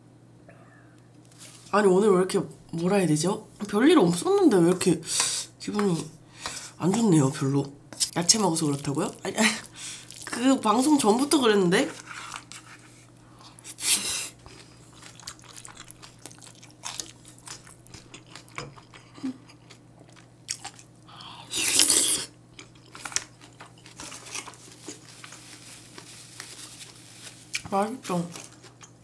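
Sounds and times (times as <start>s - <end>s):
chewing with soft crunching: 8.0s - 27.7s, 28.3s - 29.0s.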